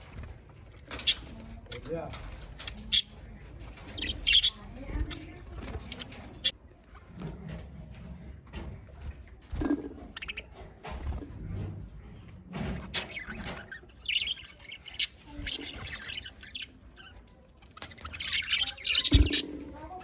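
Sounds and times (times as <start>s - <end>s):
budgerigars chirping and squawking: 0.0s - 6.6s, 10.0s - 10.7s, 12.6s - 20.0s
budgerigars warbling chatter: 0.8s - 6.6s, 12.9s - 17.2s, 17.8s - 20.0s.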